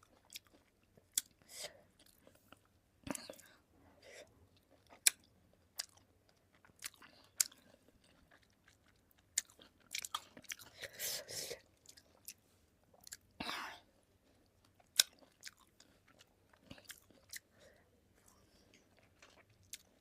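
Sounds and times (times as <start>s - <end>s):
wet chewing: 4.6s - 10.9s, 14.2s - 17.6s.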